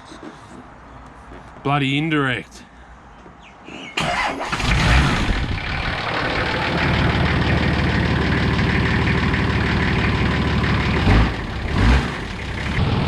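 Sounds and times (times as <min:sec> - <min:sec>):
diesel engine starting and idling: 0:04.0 - 0:13.0.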